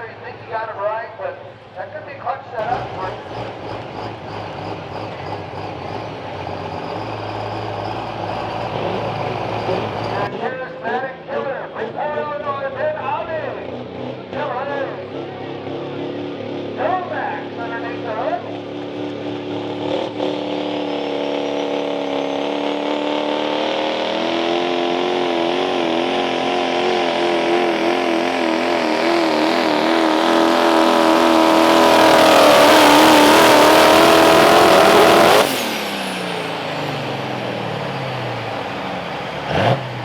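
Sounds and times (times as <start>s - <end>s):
pickup engine running flat out: 2.6s - 10.3s, 13.6s - 40.0s
engine and turbo winding down: 2.6s - 10.4s, 17.4s - 40.0s.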